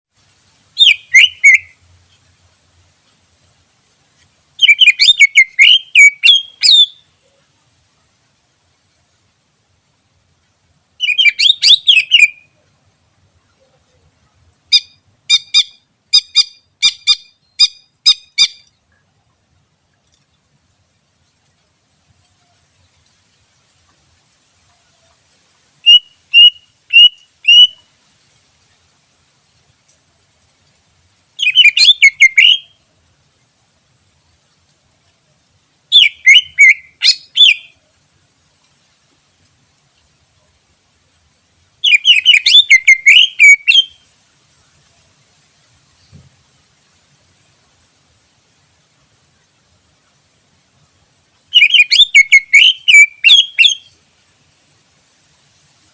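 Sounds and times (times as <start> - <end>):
bird warbling: 0.8 - 1.8, 4.6 - 7.0, 11.0 - 12.4, 25.8 - 27.8, 31.4 - 32.8, 35.9 - 37.7, 41.8 - 44.0, 51.5 - 53.9.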